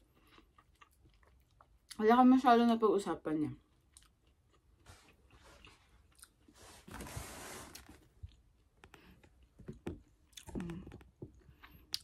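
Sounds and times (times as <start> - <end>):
faint chewing: 0.0 - 2.0, 3.6 - 6.6, 10.2 - 12.0.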